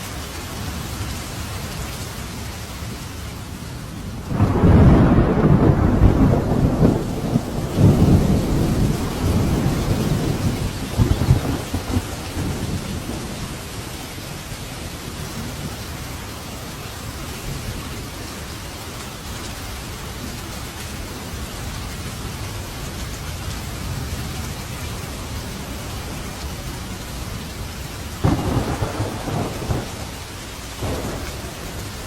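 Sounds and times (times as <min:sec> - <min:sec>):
heavy rain: 0:00.0 - 0:32.0
thunder rumbling: 0:04.1 - 0:15.9, 0:24.8 - 0:32.0.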